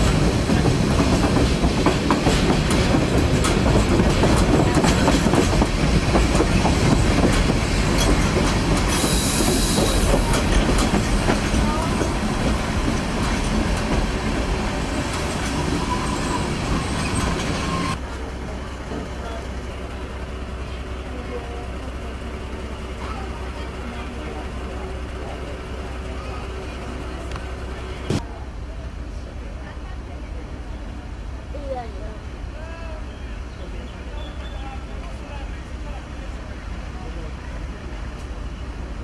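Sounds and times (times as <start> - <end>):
wheels clicking over rail joints: 9.8 - 18.0.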